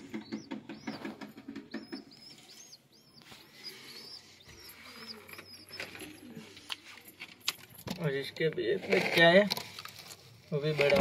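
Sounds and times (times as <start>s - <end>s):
bird chirping: 0.0s - 6.9s.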